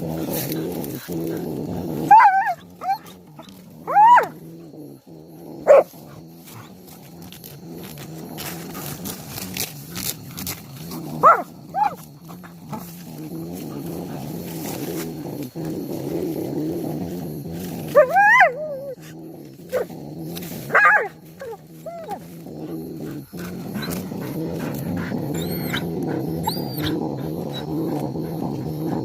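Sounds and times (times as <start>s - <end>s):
yelping whines: 0.0s - 5.9s, 11.2s - 12.9s, 17.8s - 29.0s
animal growling: 0.0s - 29.0s.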